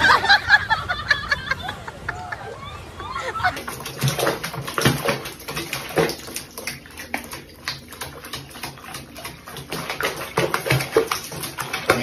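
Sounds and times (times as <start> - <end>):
bathwater splashing and dripping: 3.4 - 12.0.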